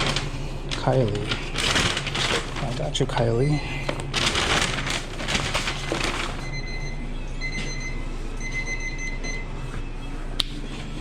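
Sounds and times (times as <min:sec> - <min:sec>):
low hum of kitchen equipment: 0:00.0 - 0:11.0
electronic alarm beeping: 0:06.4 - 0:09.5.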